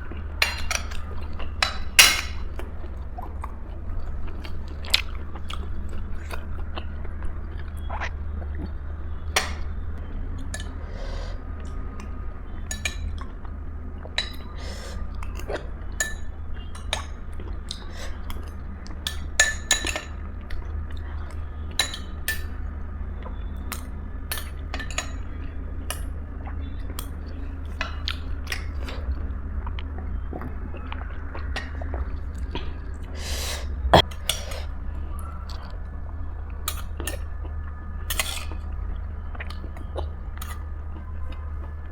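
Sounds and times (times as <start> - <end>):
cutlery clinking against a dish: 0.4 - 2.5, 19.0 - 20.2, 21.8 - 22.5
chewing: 2.3 - 8.8, 25.8 - 35.9, 36.5 - 41.8.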